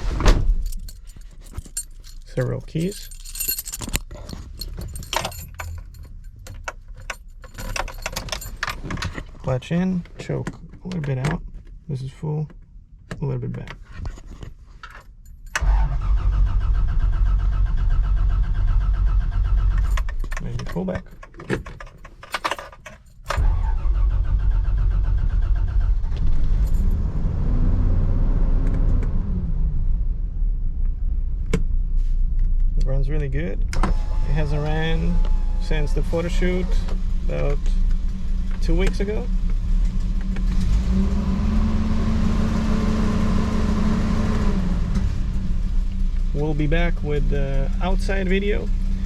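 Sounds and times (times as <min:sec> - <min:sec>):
keys jangling: 0:00.6 - 0:09.4, 0:19.8 - 0:23.4, 0:26.6 - 0:26.9.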